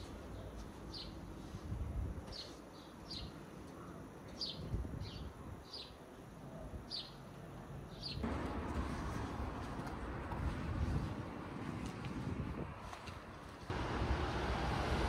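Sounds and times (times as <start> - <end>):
wind: 0.0 - 15.0
traffic noise: 7.2 - 15.0.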